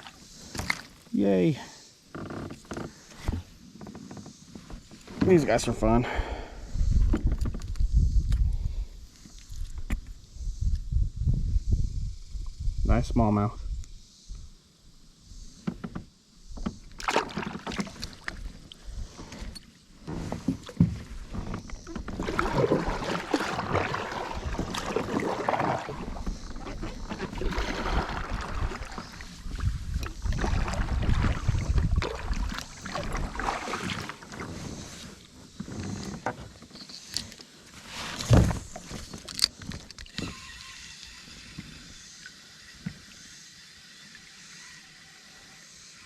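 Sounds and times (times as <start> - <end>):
water splashing: 17.0 - 18.9, 21.8 - 34.9.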